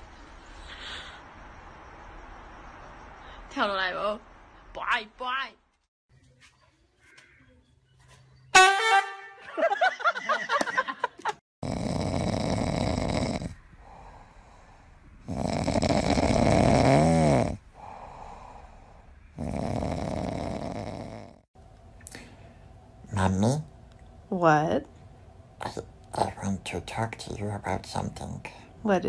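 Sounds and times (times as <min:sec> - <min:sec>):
pet snoring loudly: 0:11.6 - 0:21.5.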